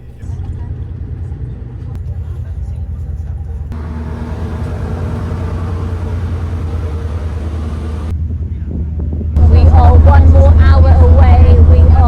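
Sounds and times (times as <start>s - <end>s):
ferry engines droning: 3.6s - 8.1s.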